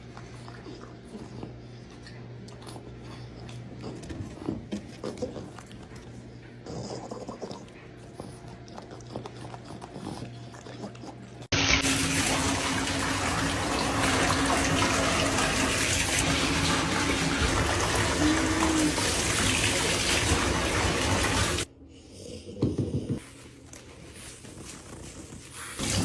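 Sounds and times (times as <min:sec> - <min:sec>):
water running into a bath: 0:11.5 - 0:21.7, 0:25.8 - 0:26.0.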